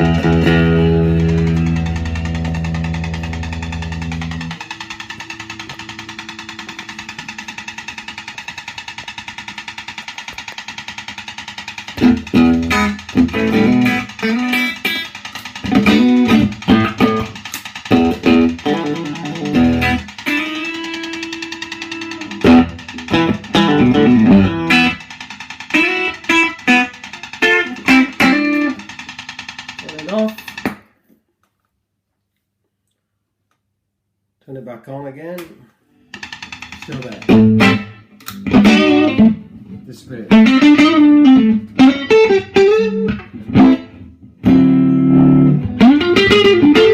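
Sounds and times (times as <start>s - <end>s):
electric guitar strumming chords: 0.0s - 7.6s, 12.0s - 25.0s, 25.7s - 28.8s, 36.9s - 46.9s.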